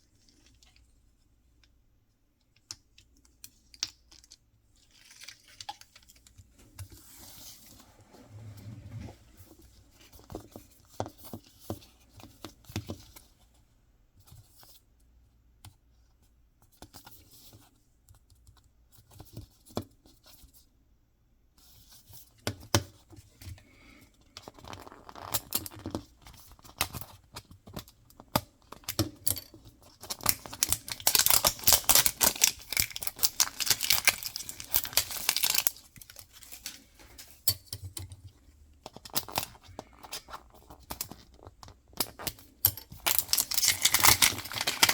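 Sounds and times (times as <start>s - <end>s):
packaging tearing and crinkling: 30.1s - 36.9s, 43.0s - 44.9s.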